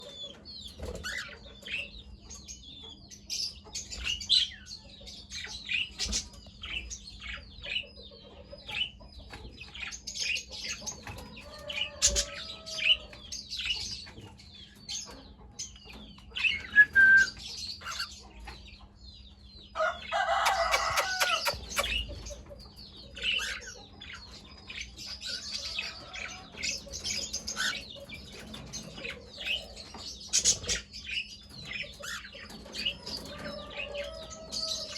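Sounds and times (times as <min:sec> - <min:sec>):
cockatiels chirping: 0:00.3 - 0:01.9, 0:15.8 - 0:18.4, 0:20.2 - 0:34.9.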